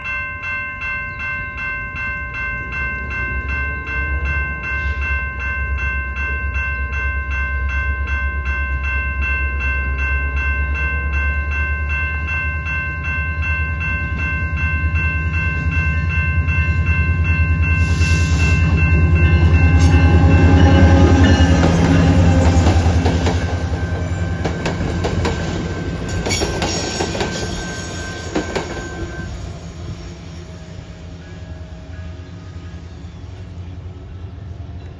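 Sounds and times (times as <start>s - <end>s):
pulsing crossing bell ringing: 0.0s - 33.4s
diesel locomotive rumble: 11.9s - 34.9s
train wheel clatter: 17.9s - 30.0s.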